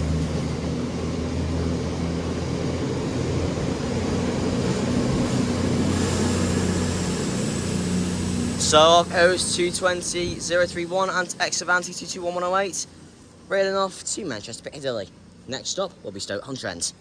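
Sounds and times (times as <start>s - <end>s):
diesel train engines droning: 0.0s - 17.0s
faint high whine: 4.8s - 17.0s.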